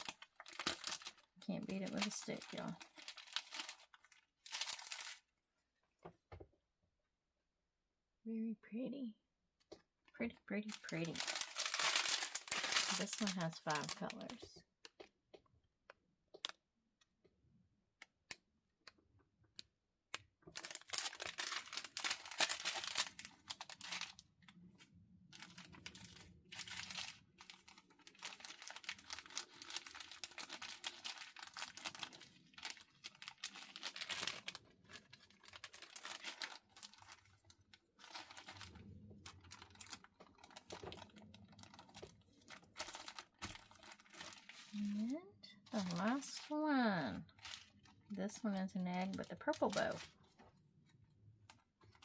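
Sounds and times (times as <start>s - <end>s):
plastic packaging crinkling: 0.0s - 5.3s, 10.5s - 15.1s, 20.5s - 52.0s
small clicks and taps: 14.8s - 17.3s.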